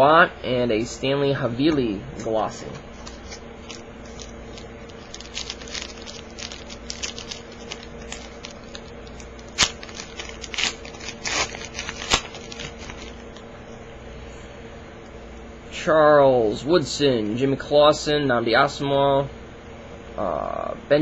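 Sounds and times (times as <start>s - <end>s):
steady low hum: 0.0s - 21.0s
foil wrapper crinkling: 2.9s - 13.5s.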